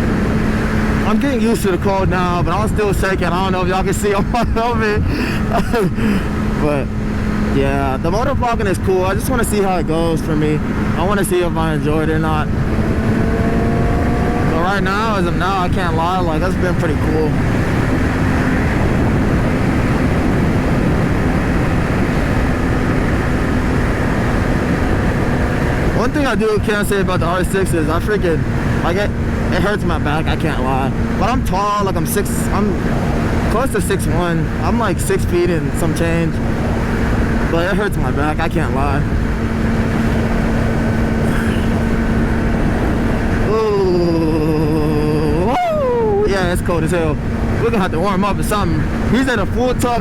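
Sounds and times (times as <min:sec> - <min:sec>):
motorbike engine cruising: 0:00.0 - 0:50.0
wind rush over microphone: 0:00.0 - 0:50.0.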